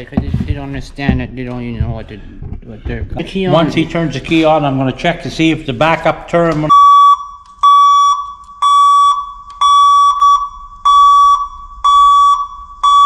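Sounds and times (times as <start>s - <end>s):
truck backup alarm beeping: 6.7s - 13.0s.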